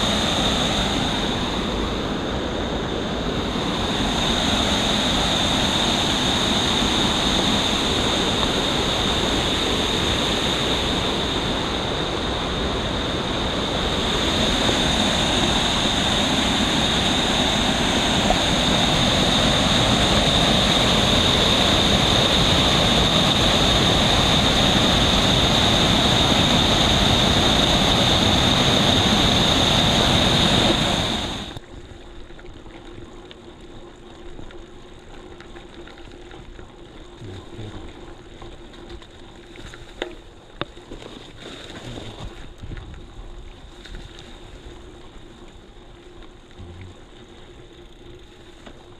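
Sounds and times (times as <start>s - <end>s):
thin high whine: 0.0s - 31.6s
waterfall roaring: 0.0s - 31.6s.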